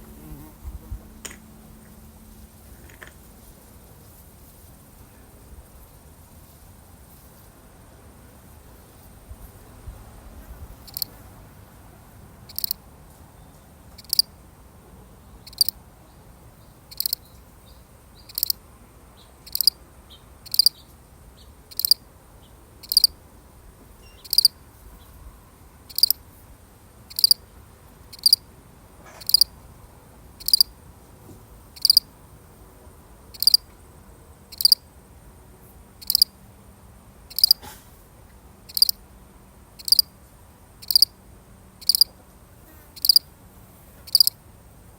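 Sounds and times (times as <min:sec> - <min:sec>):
cricket chirping: 0:10.8 - 0:11.2, 0:12.5 - 0:12.8, 0:14.0 - 0:14.3, 0:15.4 - 0:15.8, 0:16.6 - 0:17.4, 0:18.1 - 0:18.6, 0:19.2 - 0:22.1, 0:22.8 - 0:23.2, 0:24.0 - 0:25.1, 0:25.9 - 0:26.2, 0:27.1 - 0:27.4, 0:28.1 - 0:28.5, 0:29.2 - 0:29.5, 0:30.4 - 0:30.8, 0:31.7 - 0:32.2, 0:33.3 - 0:36.4, 0:37.3 - 0:37.6, 0:38.7 - 0:39.0, 0:39.8 - 0:40.1, 0:40.8 - 0:41.2, 0:41.8 - 0:42.1, 0:43.0 - 0:43.3, 0:44.1 - 0:44.9.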